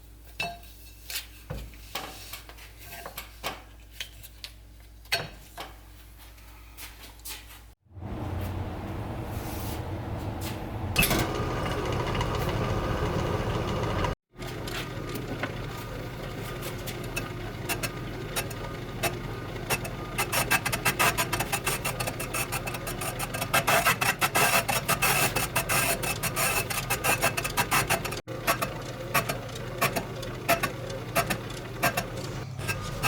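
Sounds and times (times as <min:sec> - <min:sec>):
cutting bit scraping brake drum: 0:11.0 - 0:33.0.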